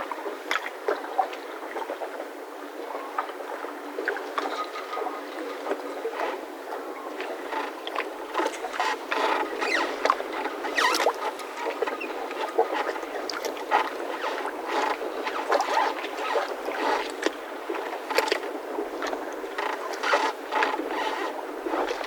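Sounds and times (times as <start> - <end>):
mooring ropes creaking and squeaking: 7.2 - 22.0.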